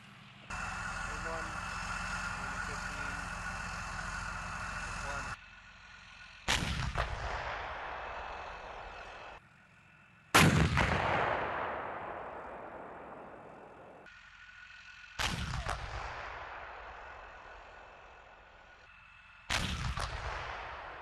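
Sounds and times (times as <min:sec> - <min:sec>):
tank gun blasts with echo: 0:06.4 - 0:09.2, 0:10.4 - 0:14.1, 0:15.2 - 0:17.6, 0:19.5 - 0:21.0.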